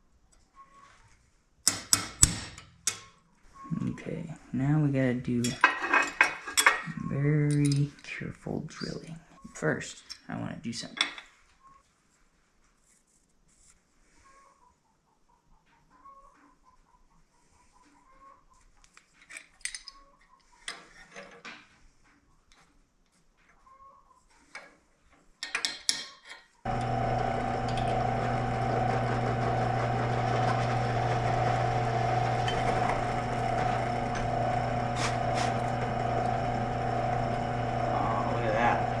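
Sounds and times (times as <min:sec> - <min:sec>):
metallic clicks of tools handled: 0:07.5 - 0:08.0, 0:19.2 - 0:20.0
drill press motor running: 0:26.7 - 0:39.0.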